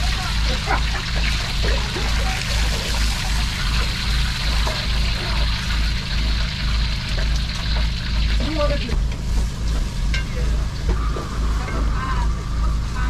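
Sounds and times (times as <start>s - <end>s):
deep equipment drone: 0.0s - 13.0s
food cooking hiss: 0.0s - 13.0s.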